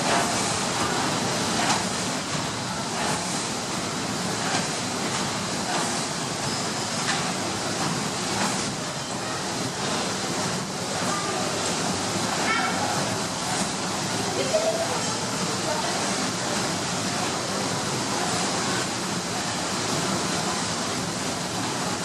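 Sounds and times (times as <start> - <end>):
steam engine hiss and rumble: 0.0 - 22.0.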